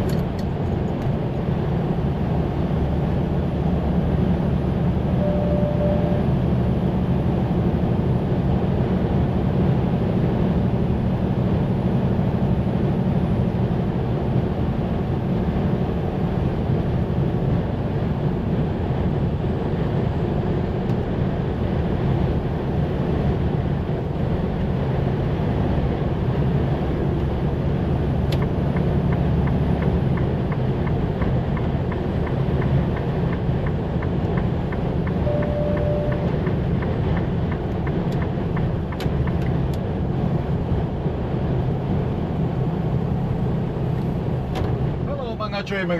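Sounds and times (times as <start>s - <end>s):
truck engine and road noise: 0.0s - 45.9s
short beep: 5.1s - 6.4s, 35.2s - 36.4s.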